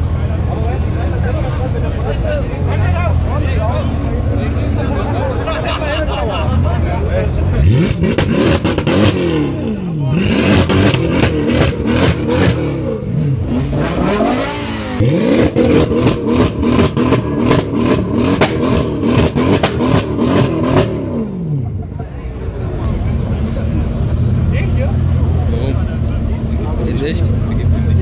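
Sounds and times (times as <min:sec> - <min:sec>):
car engine revving: 0:06.4 - 0:21.9
exhaust pops and crackles: 0:15.3 - 0:21.0.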